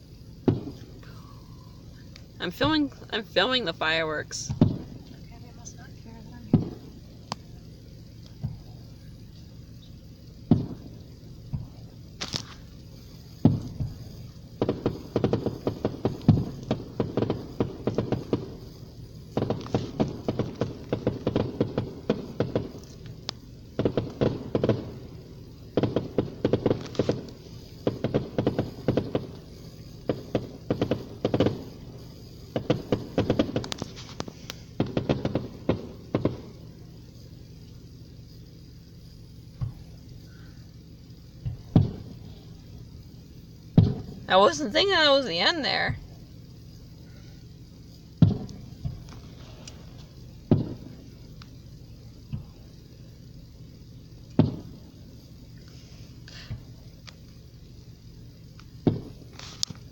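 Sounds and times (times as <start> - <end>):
fireworks booms: 0.0 - 59.9
fireworks rapid bangs and crackling: 0.0 - 59.9.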